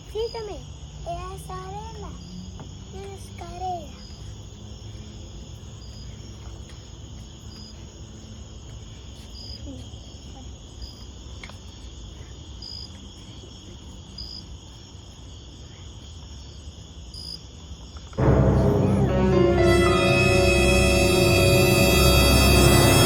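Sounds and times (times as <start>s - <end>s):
crickets trilling: 0.0s - 18.2s
sharp cricket chirp: 0.0s - 18.5s.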